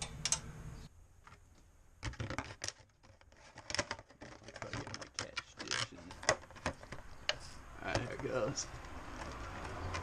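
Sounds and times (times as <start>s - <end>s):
rubber hose creaking and rubbing: 2.0s - 10.0s.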